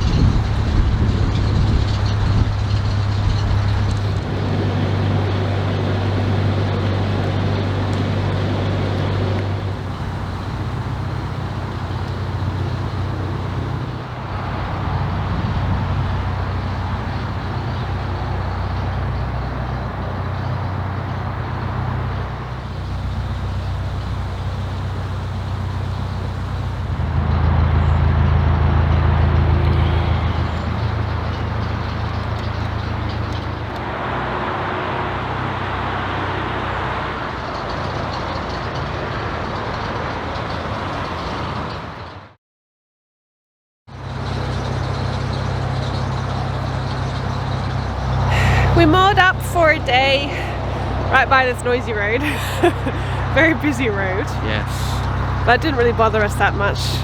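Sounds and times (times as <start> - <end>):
rushing wind and water: 0.0 - 27.6
boat engine running: 0.0 - 42.3, 43.9 - 57.0.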